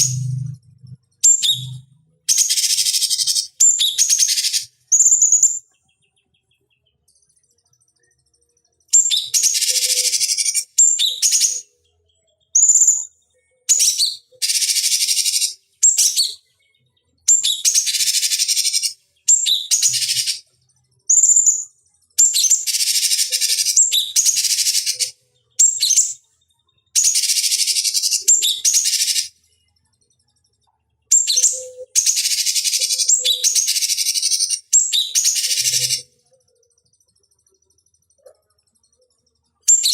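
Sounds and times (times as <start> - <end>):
bird harsh chattering calls: 2.3 - 5.6, 13.8 - 16.3, 17.3 - 20.4, 27.0 - 29.3, 31.2 - 36.1.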